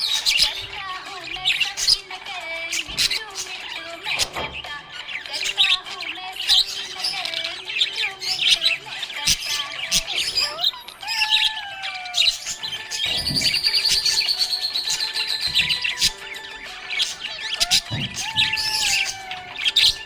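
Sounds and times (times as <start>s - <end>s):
budgerigars chirping and warbling: 0.0s - 20.0s
gliding whistled notes: 12.4s - 20.0s.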